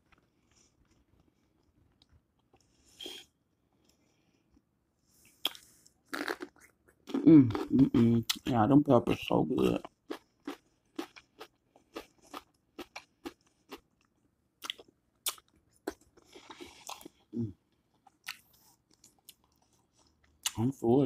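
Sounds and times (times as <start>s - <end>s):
person chewing crunchy food: 5.3s - 8.5s, 9.6s - 20.6s.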